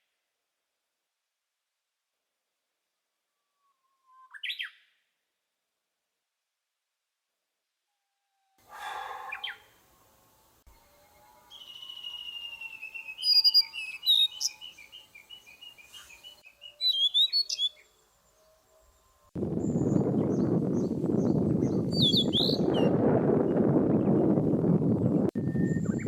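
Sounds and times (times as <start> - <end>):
short harsh bird call: 8.7 - 9.7
songbirds singing: 8.8 - 26.0.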